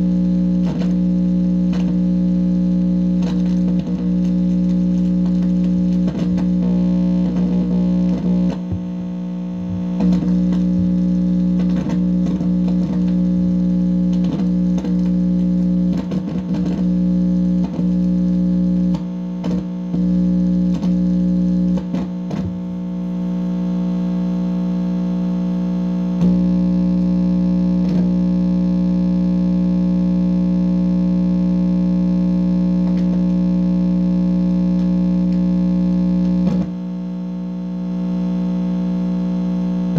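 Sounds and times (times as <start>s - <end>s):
crackles and clicks: 0.0s - 28.6s
distorted electronic hum: 0.0s - 39.9s.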